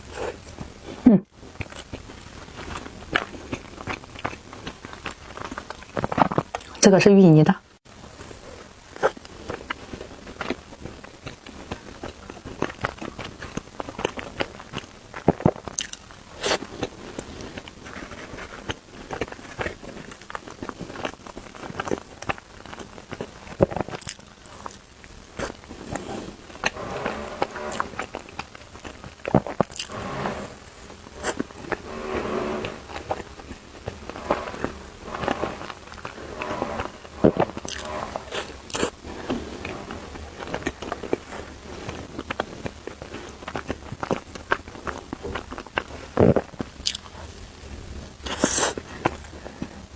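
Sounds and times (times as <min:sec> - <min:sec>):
chewing clicks and smacks: 0:10.4 - 0:16.9, 0:18.6 - 0:24.8, 0:41.9 - 0:47.2.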